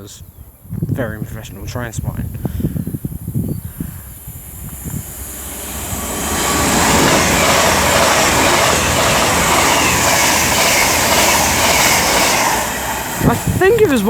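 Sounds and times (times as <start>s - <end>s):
train rushing past: 3.8s - 14.0s.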